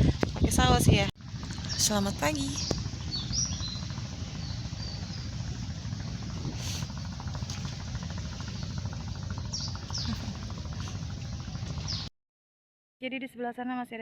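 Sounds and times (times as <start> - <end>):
steady low rumble: 0.0 - 12.1
high bird chirps: 1.7 - 5.4.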